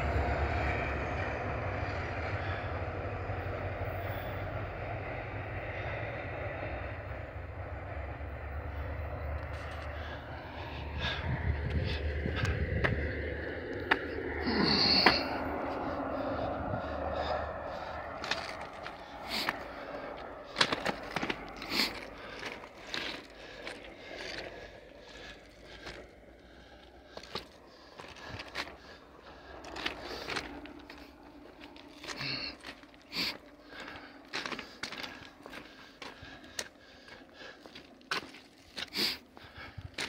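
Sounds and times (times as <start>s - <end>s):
train rolling rumble: 0.0s - 40.0s
wheels and couplers clanking: 10.8s - 39.2s.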